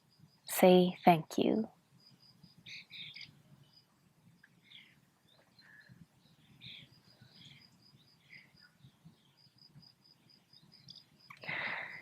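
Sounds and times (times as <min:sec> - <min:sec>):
bird chirps: 0:02.1 - 0:09.6.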